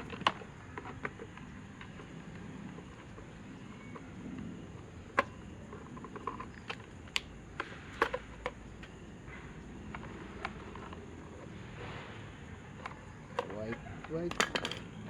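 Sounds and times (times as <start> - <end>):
tools and fan parts clicking: 12.8 - 15.0.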